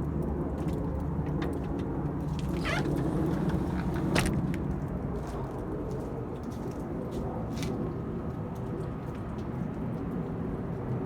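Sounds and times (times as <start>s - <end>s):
vehicle engine rumble: 0.6s - 5.1s.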